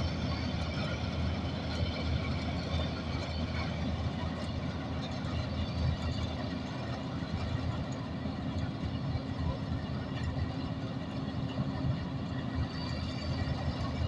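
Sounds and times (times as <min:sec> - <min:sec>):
combine harvester engine running: 0:00.0 - 0:14.0.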